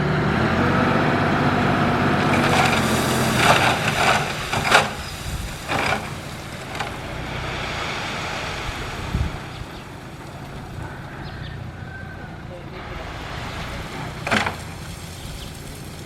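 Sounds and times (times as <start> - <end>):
diesel engine running: 0.0 - 16.0
metal clanks and scrapes: 2.3 - 7.2, 13.9 - 14.9.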